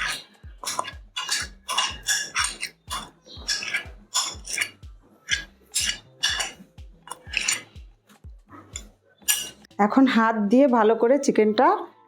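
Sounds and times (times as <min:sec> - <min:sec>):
spoon scraping a bowl: 0:00.0 - 0:07.8, 0:08.6 - 0:09.7.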